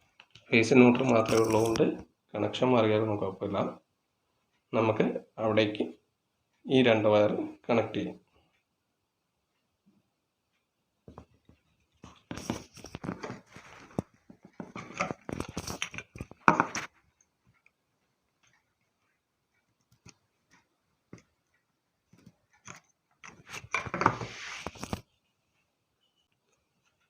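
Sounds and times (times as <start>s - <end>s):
plastic and metal parts clicking: 12.2s - 16.9s.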